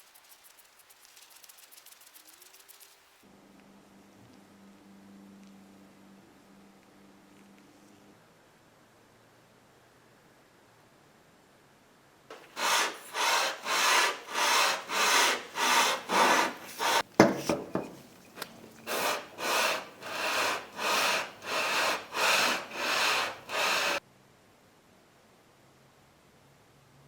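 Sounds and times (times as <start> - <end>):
hand tool rasping on wood: 12.3 - 24.0
sharp knock: 17.2 - 18.1.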